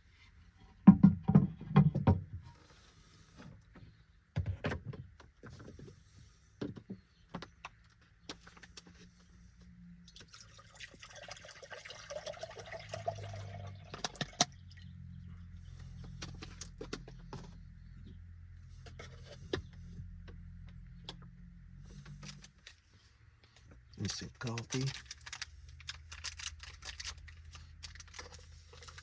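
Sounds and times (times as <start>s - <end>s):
water pouring into a cup: 10.1s - 14.8s.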